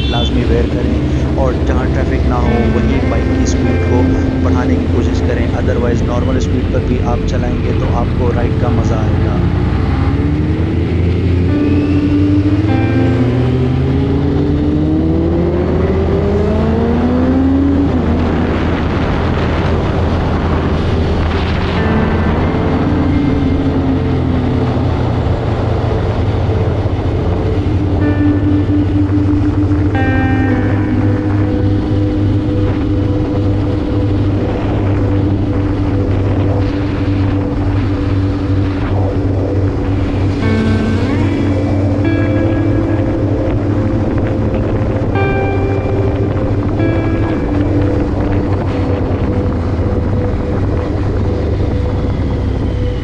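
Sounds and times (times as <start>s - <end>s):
motorcycle engine accelerating: 0.0s - 53.0s
wind rush: 0.0s - 53.0s.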